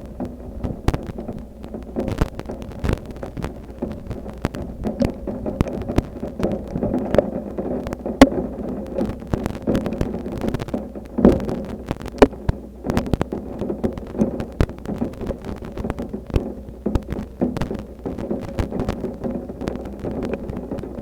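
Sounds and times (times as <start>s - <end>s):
heavy rain rumble: 0.0s - 21.0s
raindrops tapping close by: 0.0s - 21.0s.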